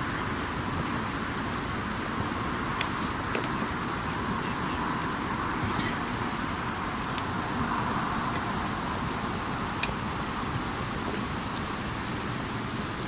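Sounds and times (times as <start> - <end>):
campfire hissing: 0.0 - 13.0.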